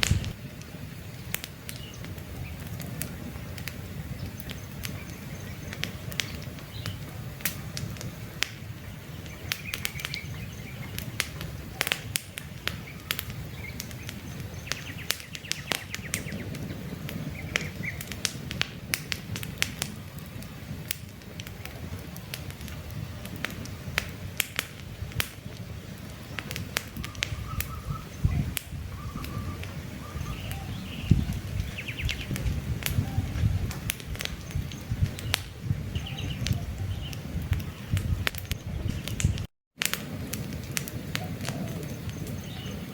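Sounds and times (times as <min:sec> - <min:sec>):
birds chirping: 0:00.0 - 0:18.2, 0:25.5 - 0:39.5, 0:41.2 - 0:42.9
campfire crackling and popping: 0:00.0 - 0:42.9.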